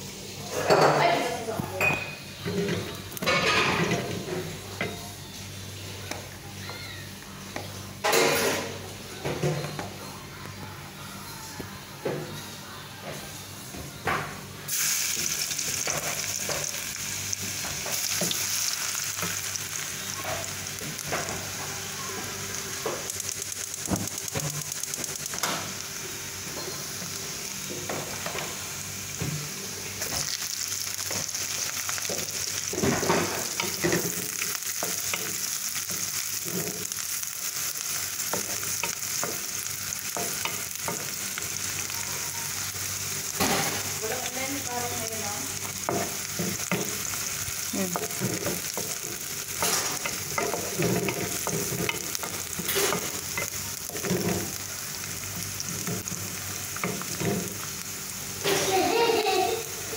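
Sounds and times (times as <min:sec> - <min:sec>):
garlic sizzling in hot oil: 0:14.7 - 0:59.9.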